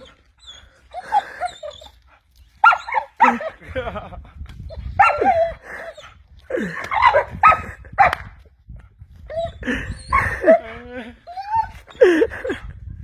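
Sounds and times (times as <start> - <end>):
dog barking and yelping: 2.6 - 3.6, 4.7 - 6.1, 6.7 - 8.3, 9.3 - 10.7.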